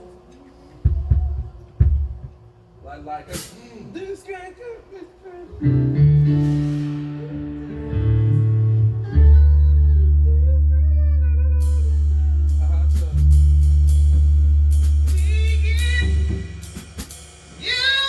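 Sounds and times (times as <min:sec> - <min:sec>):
sustained band chords: 0:05.6 - 0:17.1
deep bass note: 0:05.7 - 0:16.8
person singing: 0:07.0 - 0:13.2, 0:15.1 - 0:16.6, 0:17.6 - 0:18.0.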